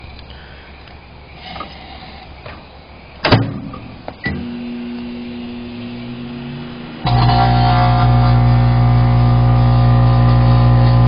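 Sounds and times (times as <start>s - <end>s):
microwave oven humming: 4.3s - 11.0s.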